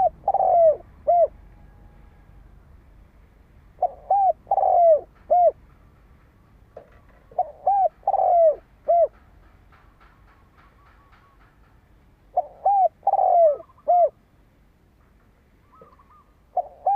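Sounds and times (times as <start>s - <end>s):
dove cooing: 0.0s - 1.9s, 3.8s - 5.6s, 6.8s - 9.2s, 12.3s - 14.2s, 15.6s - 16.9s.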